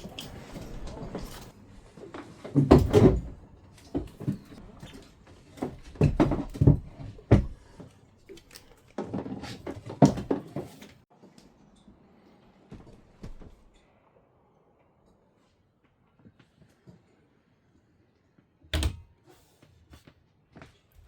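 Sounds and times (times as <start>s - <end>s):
knocks and thumps of handling: 2.2s - 5.0s, 5.6s - 7.8s.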